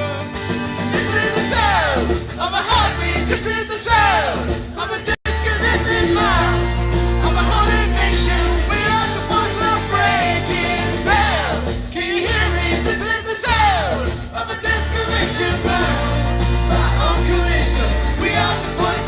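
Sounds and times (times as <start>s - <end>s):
acoustic rock band playing: 0.0s - 19.0s
person singing: 1.0s - 19.0s
low bass notes: 5.3s - 12.9s, 13.5s - 19.0s.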